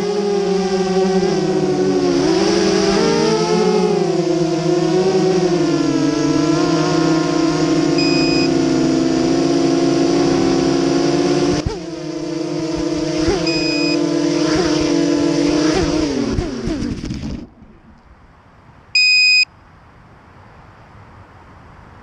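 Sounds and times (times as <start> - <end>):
drone motors whining: 0.0 - 18.0
short high beeps: 8.0 - 8.5, 13.4 - 14.0, 19.0 - 19.5.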